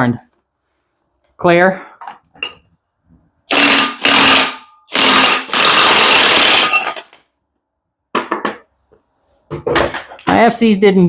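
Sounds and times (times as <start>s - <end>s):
impact wrench hammering: 3.5s - 7.2s.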